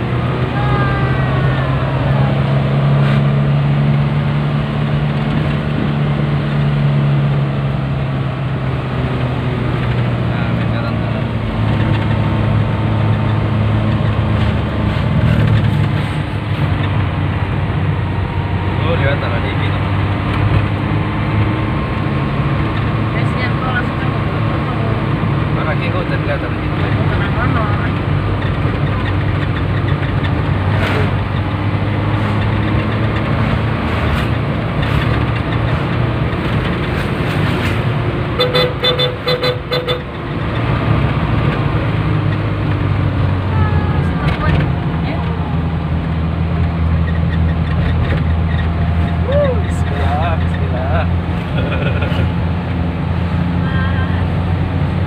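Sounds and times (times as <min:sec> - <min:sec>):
van engine running: 0:00.0 - 0:55.0
short car horn toots: 0:38.4 - 0:40.1.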